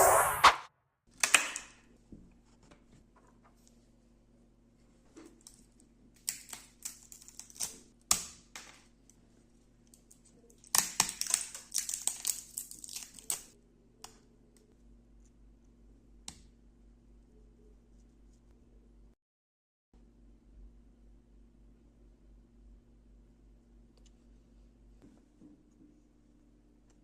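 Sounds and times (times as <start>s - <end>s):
faint steady hum: 13.6s - 19.2s, 20.0s - 27.0s.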